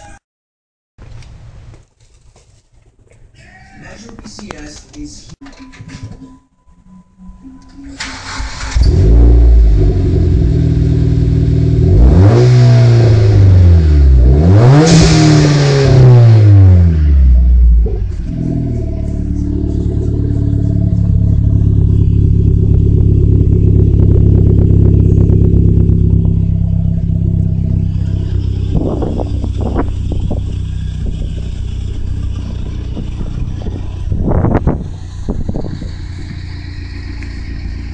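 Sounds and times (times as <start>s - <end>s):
car engine revving and idling: 8.0s - 37.9s.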